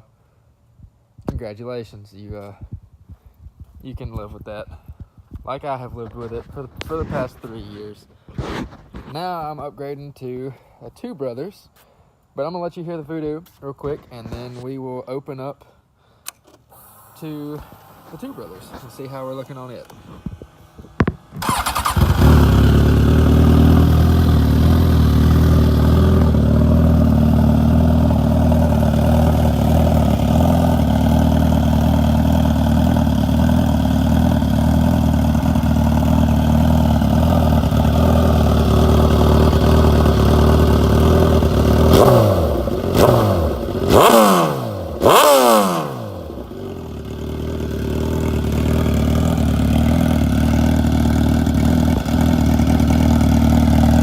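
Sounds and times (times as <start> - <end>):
motorcycle engine starting and idling: 15.6 - 54.0
engine throttle blips: 16.8 - 28.2.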